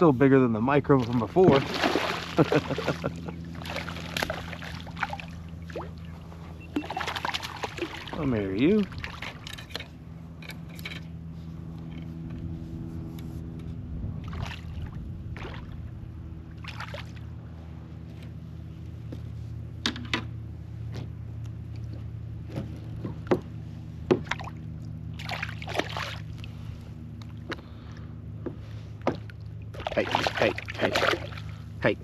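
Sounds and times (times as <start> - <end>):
steady low hum: 0.0 - 32.0
water splashing: 0.9 - 6.1, 6.7 - 9.5, 14.2 - 15.9, 16.5 - 17.3, 24.2 - 26.6, 29.4 - 31.7.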